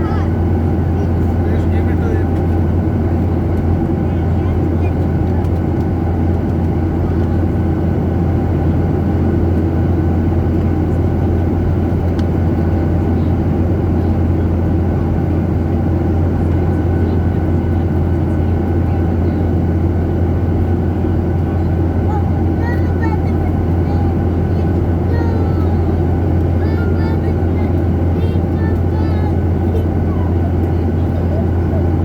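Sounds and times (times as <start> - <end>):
jet engine drone in cabin: 0.0 - 32.0.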